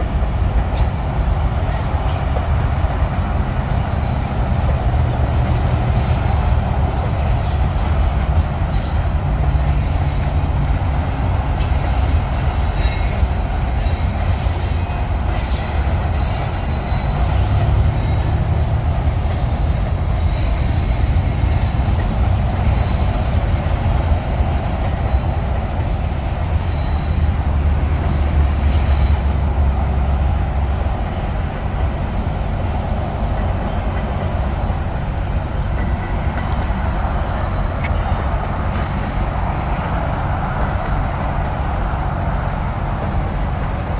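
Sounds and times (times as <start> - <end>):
freight train cars rumbling past: 0.0 - 43.9
high-pitched wheel squeal: 5.5 - 18.5, 19.6 - 25.3, 26.5 - 29.4, 37.0 - 40.2.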